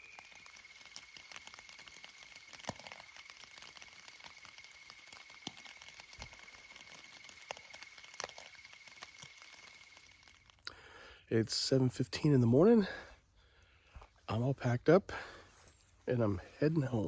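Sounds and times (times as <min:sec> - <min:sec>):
insect trilling: 0:00.0 - 0:10.7
raindrops tapping on fabric: 0:00.4 - 0:06.9.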